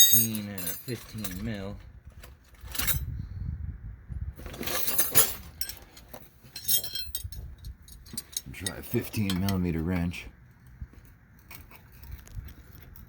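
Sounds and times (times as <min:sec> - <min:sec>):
metal wrenches clinking: 0:00.0 - 0:01.7, 0:02.5 - 0:03.1, 0:04.5 - 0:10.2.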